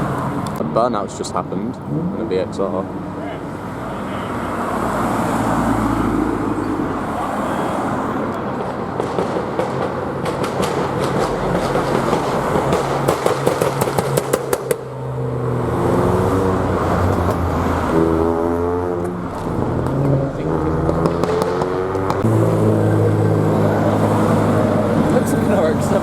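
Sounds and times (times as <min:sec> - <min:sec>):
loud car engines running: 0:00.0 - 0:26.0
exhaust pops and cracks: 0:08.6 - 0:14.9, 0:19.0 - 0:22.3.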